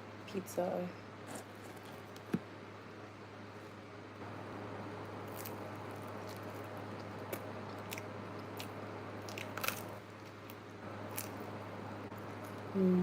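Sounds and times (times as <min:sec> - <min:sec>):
crust crunching: 0:05.2 - 0:11.6
biting and chewing pizza: 0:05.2 - 0:12.7.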